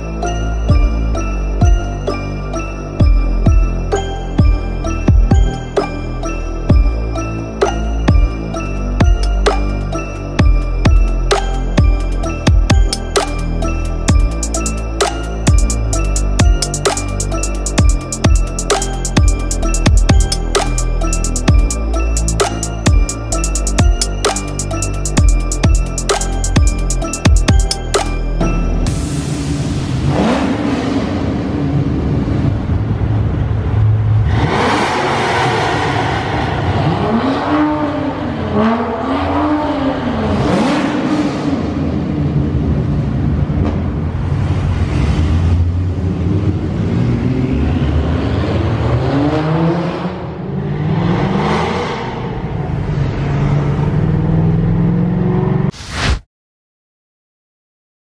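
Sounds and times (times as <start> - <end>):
car engines revving: 28.8 - 55.7.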